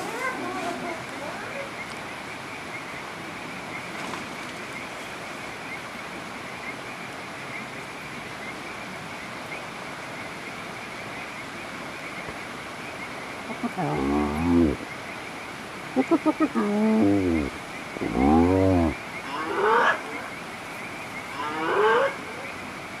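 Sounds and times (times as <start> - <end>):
rain on a tent: 0.0 - 13.6.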